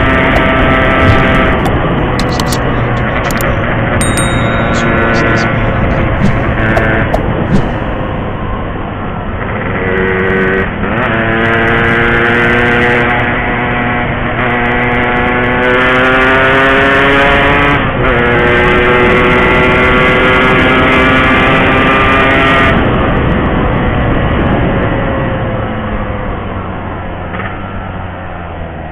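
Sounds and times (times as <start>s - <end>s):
two-stroke motorcycle engine accelerating: 9.1s - 22.4s.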